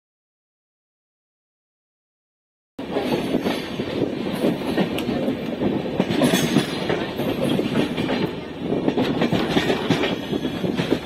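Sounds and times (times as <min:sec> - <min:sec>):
train coach rumble: 0:02.8 - 0:11.0
wheels clattering over rail joints: 0:02.8 - 0:11.0.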